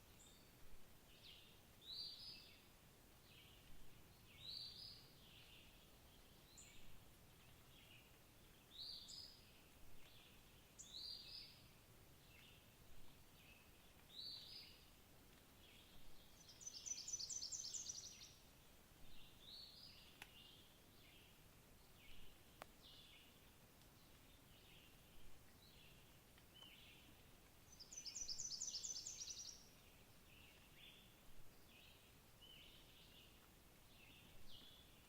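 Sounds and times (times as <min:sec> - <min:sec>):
faint birdsong: 0:00.0 - 0:35.0
faint clicks: 0:09.9 - 0:10.4, 0:12.3 - 0:16.8, 0:19.9 - 0:20.6, 0:22.5 - 0:24.8, 0:26.2 - 0:28.0.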